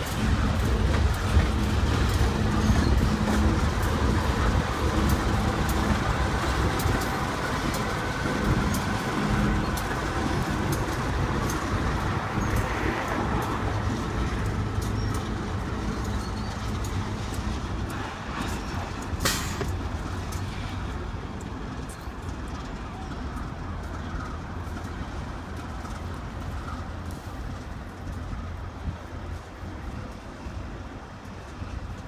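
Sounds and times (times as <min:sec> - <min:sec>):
diesel locomotive engine rumbling: 0:00.0 - 0:32.0
wheels clicking on rails: 0:00.0 - 0:32.0.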